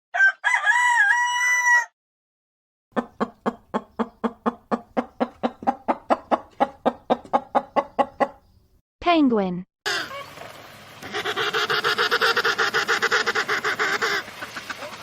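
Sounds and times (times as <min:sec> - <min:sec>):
rooster crowing: 0:00.1 - 0:02.0
chicken clucking: 0:02.9 - 0:08.5, 0:11.0 - 0:15.0.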